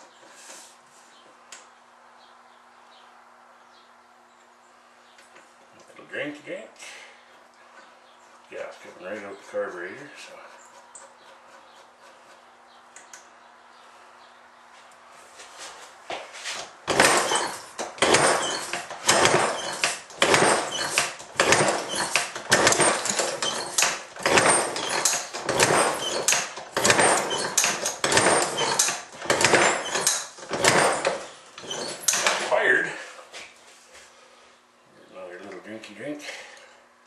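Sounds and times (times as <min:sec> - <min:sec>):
engine kickstarted without catching: 0:16.9 - 0:32.6.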